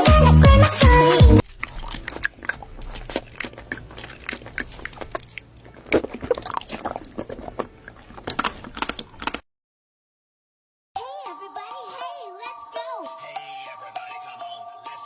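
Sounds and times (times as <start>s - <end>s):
music: 0.0s - 1.4s, 11.0s - 15.0s
crunchy chewing: 1.1s - 9.4s.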